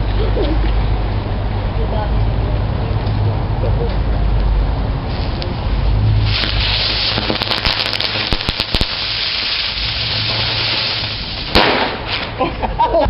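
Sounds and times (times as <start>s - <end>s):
fireworks hissing: 5.0s - 12.6s
firework bang: 6.2s - 12.5s
firecracker cracks: 6.2s - 12.6s.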